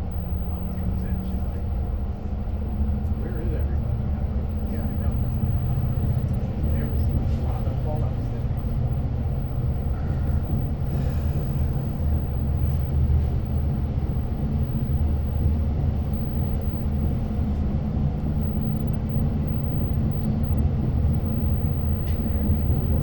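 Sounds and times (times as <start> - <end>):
train rumbling on rails: 0.0 - 16.2.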